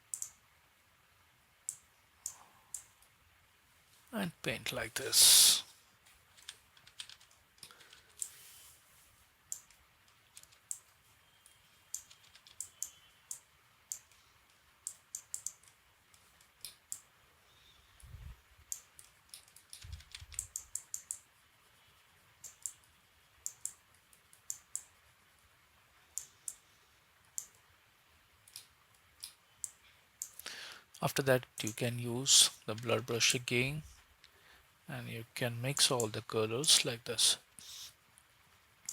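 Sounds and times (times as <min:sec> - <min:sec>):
mouse and keyboard clicking: 0:06.4 - 0:08.4, 0:09.5 - 0:10.9, 0:11.9 - 0:14.2, 0:14.8 - 0:15.8, 0:18.7 - 0:21.3, 0:22.4 - 0:24.9.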